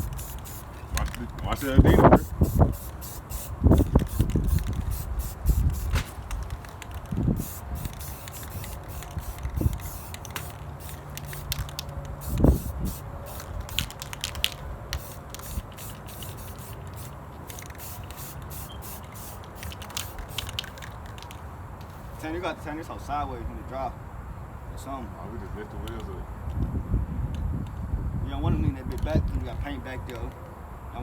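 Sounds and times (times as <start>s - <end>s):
spray-paint can hissing: 0.0s - 21.3s.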